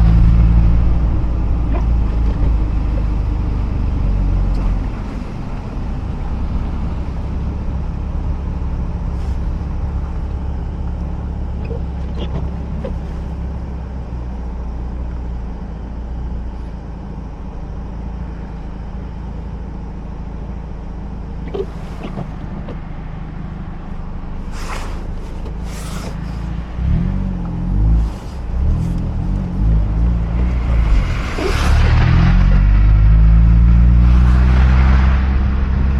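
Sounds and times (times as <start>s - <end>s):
car engine droning: 0.0s - 35.9s
road noise: 0.0s - 35.9s.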